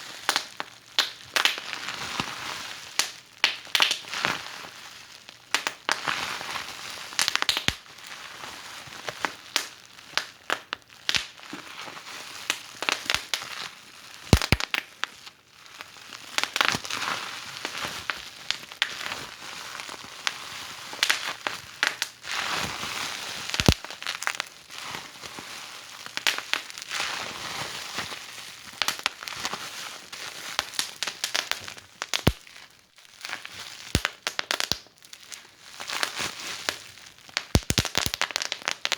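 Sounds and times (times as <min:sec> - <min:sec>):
wood fire crackling: 0:14.3 - 0:14.8, 0:23.5 - 0:24.4, 0:30.6 - 0:32.5, 0:33.2 - 0:34.9, 0:37.4 - 0:38.9.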